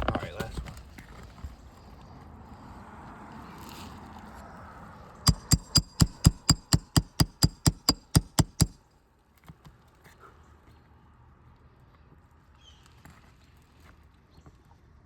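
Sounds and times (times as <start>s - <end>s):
hammer striking metal nail puller: 5.3s - 8.8s.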